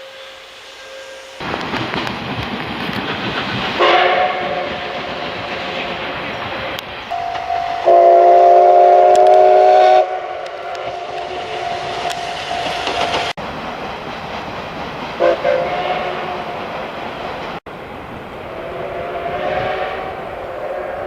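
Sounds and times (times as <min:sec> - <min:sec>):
steam locomotive whistle: 0:00.0 - 0:01.4, 0:03.8 - 0:04.9, 0:07.1 - 0:12.9, 0:15.2 - 0:16.6, 0:18.5 - 0:21.0
train rumble: 0:00.0 - 0:21.0.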